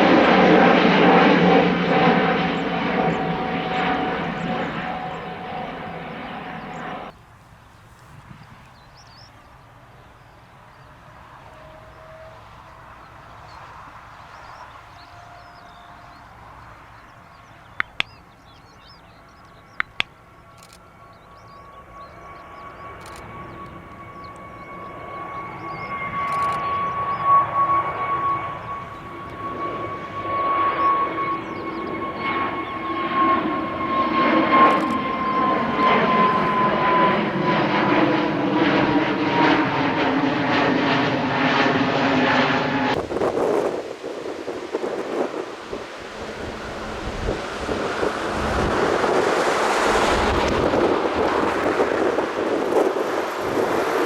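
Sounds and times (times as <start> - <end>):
jet engines at takeoff power: 0.0 - 54.0
sharp clicks: 19.4 - 20.8, 26.3 - 26.6, 34.6 - 35.1
fan whine sliding down in pitch: 25.5 - 54.0.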